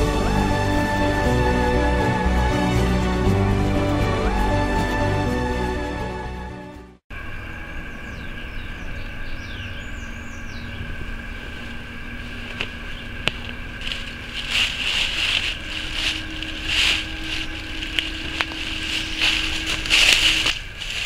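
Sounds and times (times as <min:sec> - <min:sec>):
theme music: 0:00.0 - 0:07.0
faint steady hum: 0:07.1 - 0:21.0
rushes of noise: 0:10.6 - 0:21.0.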